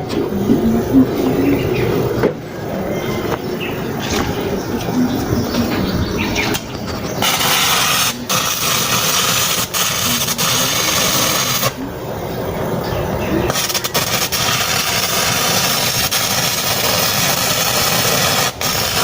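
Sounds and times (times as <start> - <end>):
arc welding crackling and hissing: 6.5 - 11.9, 13.5 - 19.0.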